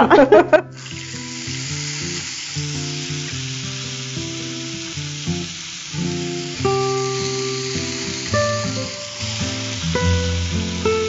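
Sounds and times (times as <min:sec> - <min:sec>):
leaves sizzling in oil: 0:00.8 - 0:11.0
background music: 0:06.8 - 0:11.0.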